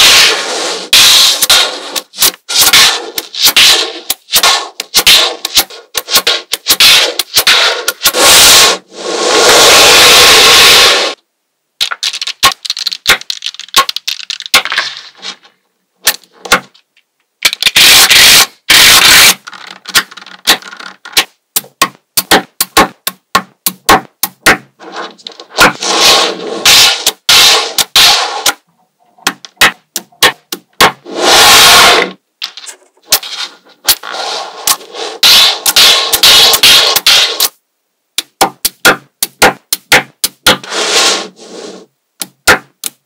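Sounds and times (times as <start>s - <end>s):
magnetic balls rattling and scraping: 0.0s - 11.2s, 11.8s - 17.8s, 19.2s - 22.7s, 23.7s - 37.6s
magnetic balls clicking together: 11.8s - 14.7s, 19.3s - 24.6s, 29.2s - 31.0s, 34.7s - 40.6s, 42.2s - 43.0s.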